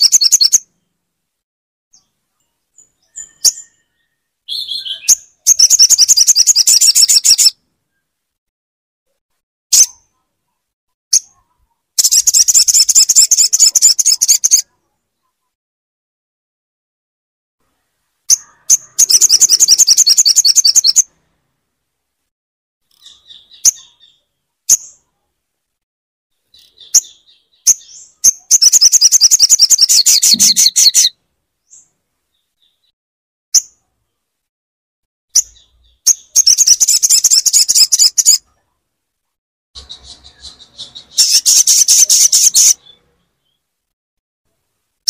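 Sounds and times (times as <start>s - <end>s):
bird calls: 1.9s - 8.1s, 17.7s - 21.1s, 22.8s - 25.1s, 26.5s - 32.9s, 35.3s - 38.8s, 39.8s - 43.7s
bird trilling: 3.0s - 7.6s, 11.1s - 14.7s, 18.3s - 21.1s, 26.6s - 31.2s, 35.4s - 38.4s, 39.8s - 43.0s.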